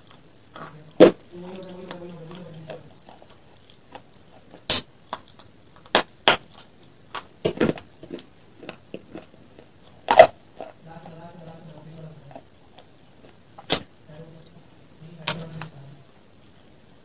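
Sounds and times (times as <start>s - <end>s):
closed-mouth hum: 0.0s - 17.0s
sharp crunches of biting: 2.3s - 10.8s.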